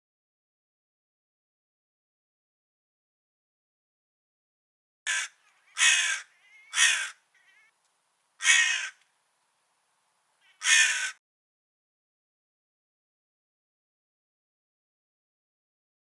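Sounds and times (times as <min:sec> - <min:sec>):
crow cawing: 0:05.1 - 0:07.8, 0:08.4 - 0:09.0, 0:10.4 - 0:11.2.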